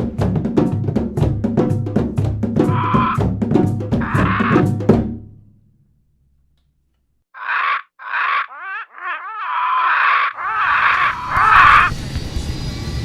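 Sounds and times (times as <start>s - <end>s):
bird of prey screeching: 2.7s - 3.2s, 4.0s - 4.7s, 7.4s - 12.0s
low rumble: 10.6s - 13.0s.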